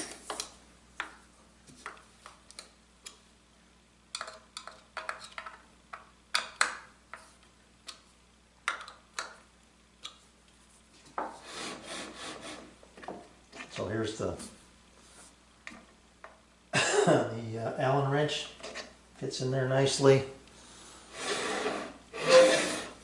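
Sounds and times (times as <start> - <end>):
tools clicking on a workbench: 4.1 - 7.2
scraping rub: 21.2 - 23.0.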